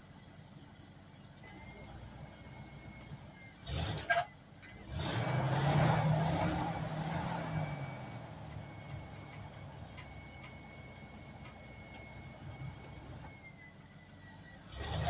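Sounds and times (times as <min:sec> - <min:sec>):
vehicle engine running: 0:04.8 - 0:13.4.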